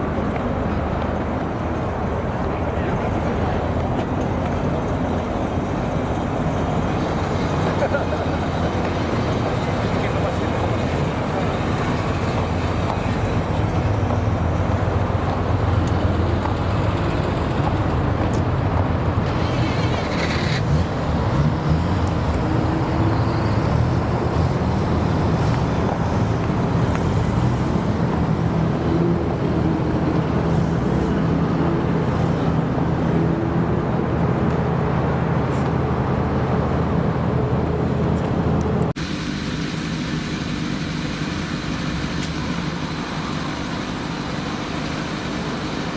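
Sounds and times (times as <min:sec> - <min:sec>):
car engines rumbling at low revs: 0:00.0 - 0:45.9.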